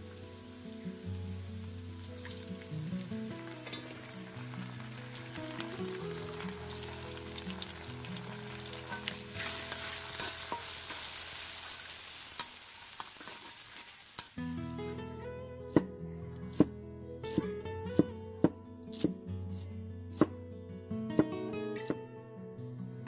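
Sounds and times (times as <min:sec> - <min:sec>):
soft background music: 0:00.0 - 0:11.0, 0:14.4 - 0:23.0
onions sizzling in a pan: 0:00.0 - 0:14.9
metal spatula scraping: 0:08.6 - 0:14.4.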